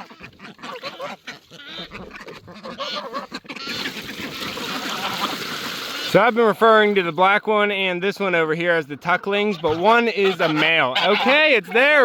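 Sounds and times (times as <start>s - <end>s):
ducks quacking: 0.0s - 12.0s
water running or splashing: 3.8s - 7.2s.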